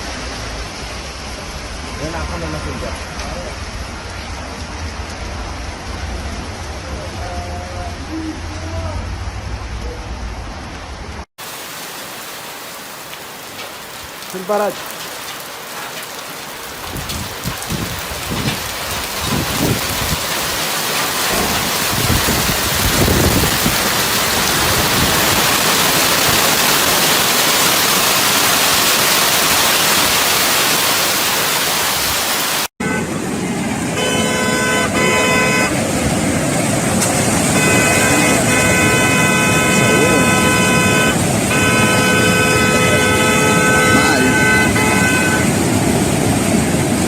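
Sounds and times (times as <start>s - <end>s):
heavy rain pouring: 0.0s - 47.0s
low gusty rumbles: 16.5s - 27.1s
car horns honking: 32.8s - 33.3s, 33.9s - 35.8s, 37.2s - 45.7s.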